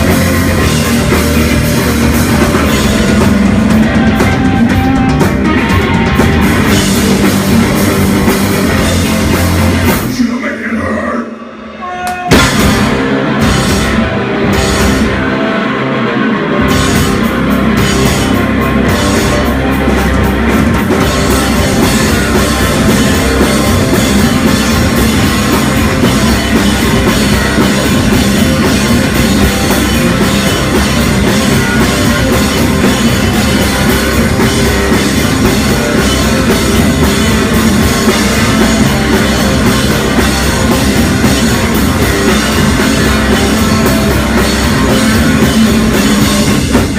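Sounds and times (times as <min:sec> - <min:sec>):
drum kit: 0:00.0 - 0:46.9
heavy rock band playing: 0:00.0 - 0:46.9.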